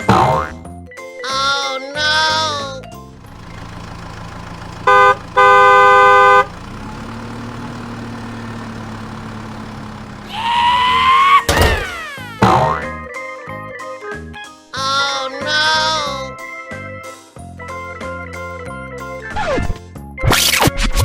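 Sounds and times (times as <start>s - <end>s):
low engine hum: 3.0s - 12.8s
cartoon vehicle horn honking: 4.5s - 13.0s
sliding cartoon sound effects: 10.3s - 13.0s.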